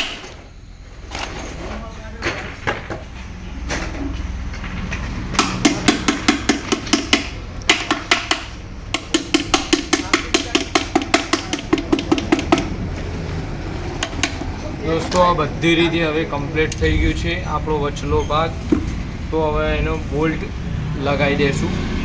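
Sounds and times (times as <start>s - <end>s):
rapid hammer tapping on metal: 5.4s - 12.9s, 13.9s - 14.6s.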